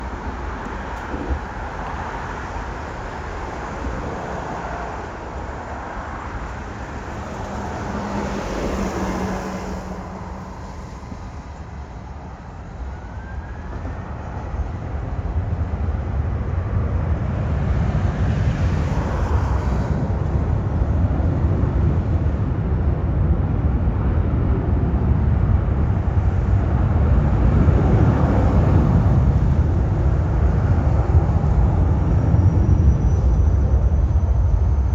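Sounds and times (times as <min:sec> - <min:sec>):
deep rumble: 0:19.6 - 0:34.9.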